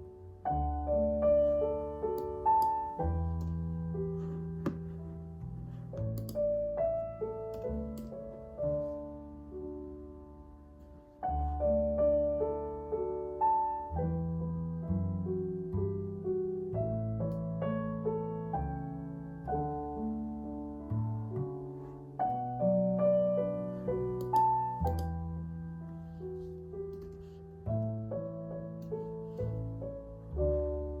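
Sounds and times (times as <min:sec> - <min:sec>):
calm solo piano music: 0:00.0 - 0:31.0.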